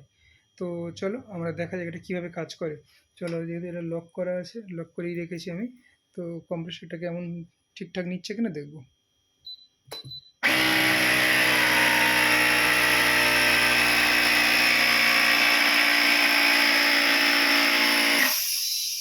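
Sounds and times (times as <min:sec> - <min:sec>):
air compressor humming and hissing: 0:10.4 - 0:19.0.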